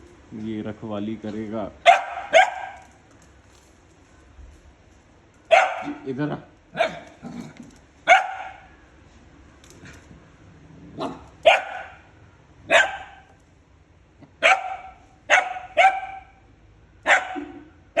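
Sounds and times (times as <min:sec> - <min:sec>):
puppy barking: 0:01.8 - 0:02.9, 0:05.5 - 0:06.0, 0:06.7 - 0:07.2, 0:08.0 - 0:08.7, 0:11.0 - 0:13.3, 0:14.4 - 0:16.4, 0:17.0 - 0:18.0.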